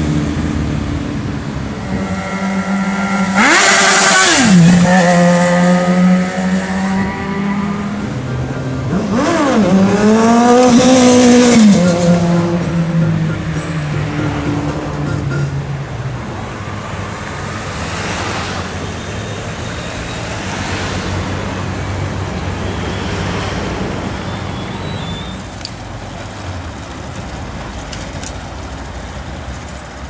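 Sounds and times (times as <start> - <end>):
vehicles passing: 0.0 - 30.0.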